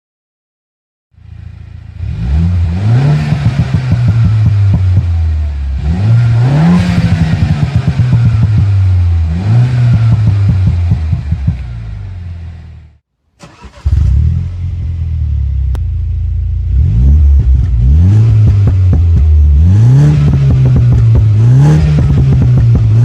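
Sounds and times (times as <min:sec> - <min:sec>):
car engine revving: 0:01.2 - 0:23.0
exhaust popping and crackling: 0:02.4 - 0:12.5, 0:15.6 - 0:23.0.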